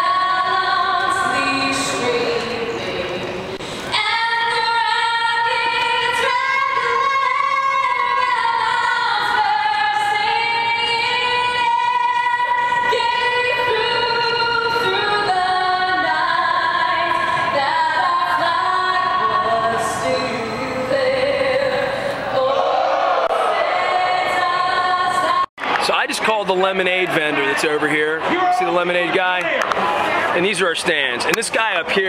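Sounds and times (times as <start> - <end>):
woman singing slow melody: 0.0 - 22.8.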